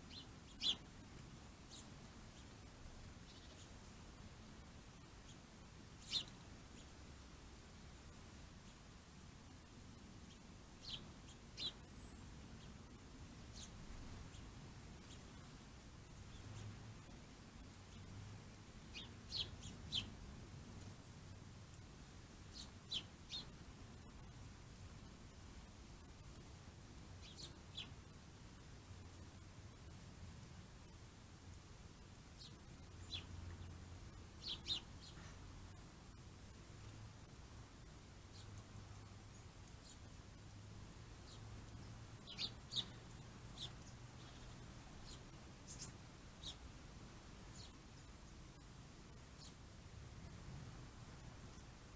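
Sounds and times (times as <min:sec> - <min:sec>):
bird chirping: 0:00.0 - 0:00.9, 0:01.7 - 0:02.6, 0:03.2 - 0:04.0, 0:05.0 - 0:07.0, 0:10.2 - 0:18.2, 0:18.8 - 0:21.2, 0:22.4 - 0:24.3, 0:27.2 - 0:28.1, 0:32.4 - 0:35.8, 0:38.2 - 0:40.2, 0:41.1 - 0:46.7, 0:47.4 - 0:50.4, 0:51.4 - 0:51.9
faint low hum: 0:00.0 - 0:51.9.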